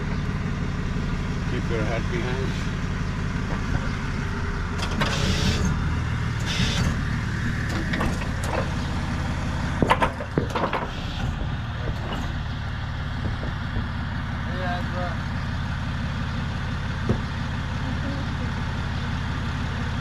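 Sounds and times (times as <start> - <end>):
truck engine idling: 0.0 - 20.0
sharp metallic knocks: 9.8 - 12.5.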